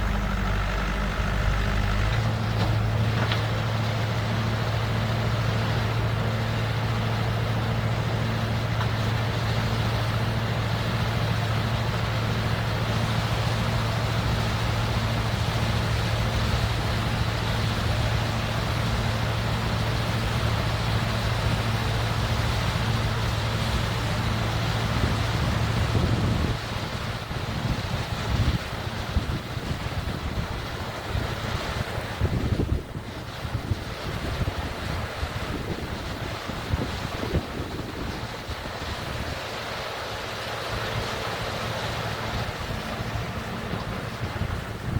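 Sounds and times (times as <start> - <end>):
dozer diesel engine running: 0.0 - 44.9.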